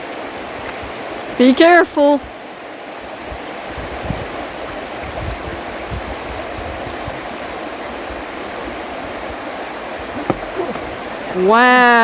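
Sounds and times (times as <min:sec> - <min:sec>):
stream flowing over rocks: 0:00.0 - 0:12.0
low thumps: 0:10.2 - 0:11.3.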